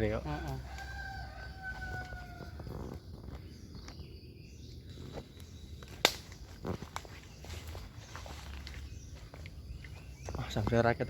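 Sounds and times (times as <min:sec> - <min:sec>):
sharp crack: 0:05.9 - 0:06.4.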